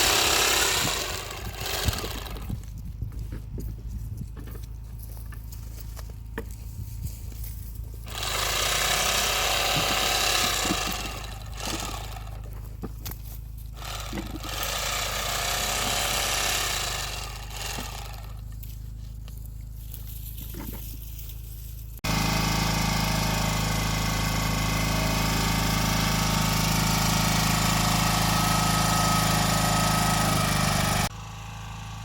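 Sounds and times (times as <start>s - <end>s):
motor humming: 0.0s - 3.7s, 7.9s - 18.6s, 22.0s - 32.0s.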